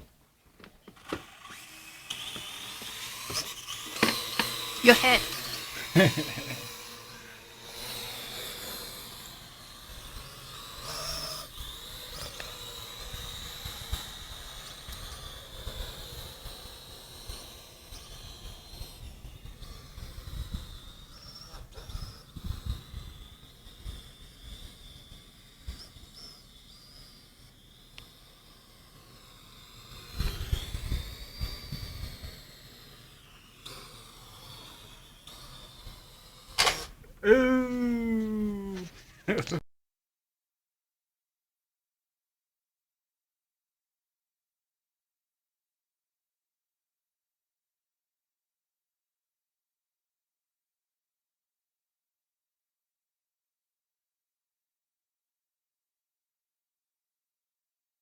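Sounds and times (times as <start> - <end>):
drone rotors whining: 0.8 - 13.0.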